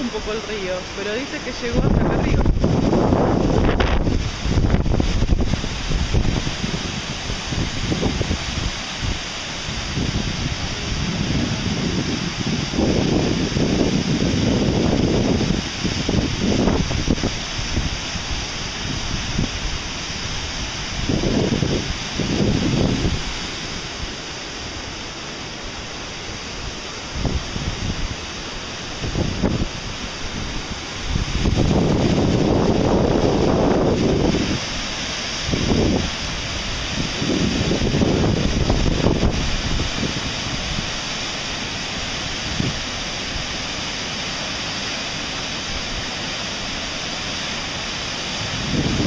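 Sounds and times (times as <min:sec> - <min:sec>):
wind buffeting microphone: 0:00.0 - 0:24.8, 0:26.6 - 0:43.9, 0:48.0 - 0:49.0
waterfall and river rushing: 0:00.0 - 0:49.0.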